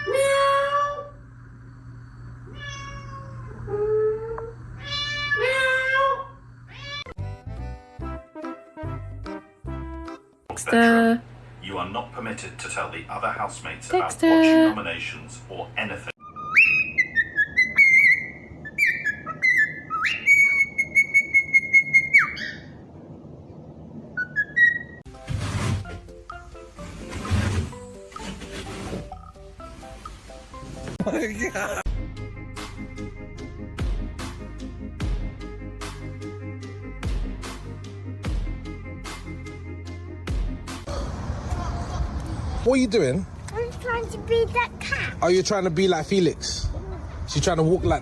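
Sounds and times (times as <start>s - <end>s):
cat meowing: 2.5s - 7.2s.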